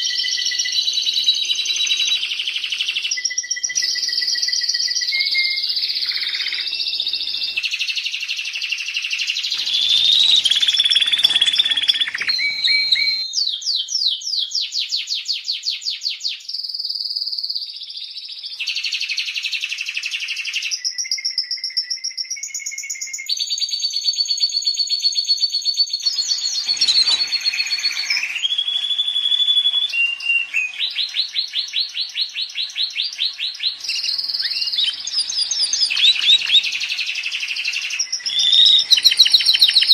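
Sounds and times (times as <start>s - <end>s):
canary singing: 0.0s - 8.0s, 9.0s - 13.7s, 25.9s - 39.9s.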